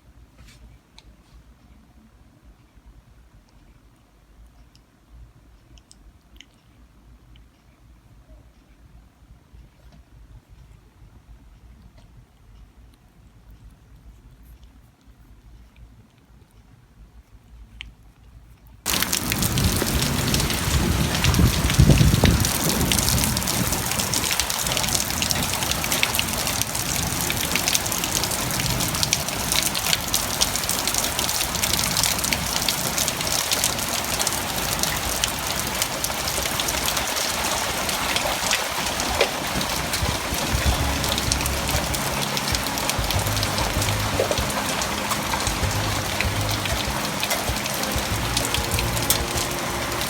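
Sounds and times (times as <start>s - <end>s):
heavy rain pouring: 18.9s - 50.0s
low rumble: 40.1s - 50.0s.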